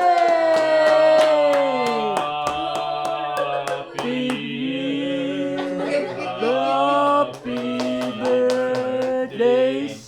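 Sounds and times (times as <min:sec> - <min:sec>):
hands clapping a beat: 0:00.0 - 0:04.6, 0:07.0 - 0:09.6
group singing and cheering: 0:00.0 - 0:10.0.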